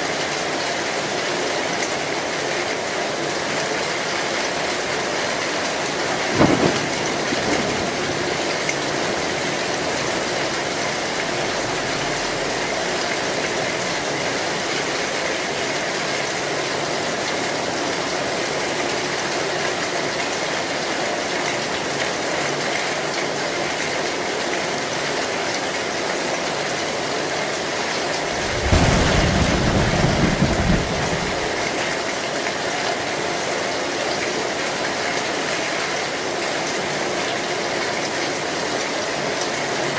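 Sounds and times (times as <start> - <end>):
heavy rain on a metal roof: 0.0 - 39.9
thunder rumble: 5.9 - 15.0, 28.2 - 32.0
sharp crack: 28.2 - 31.8.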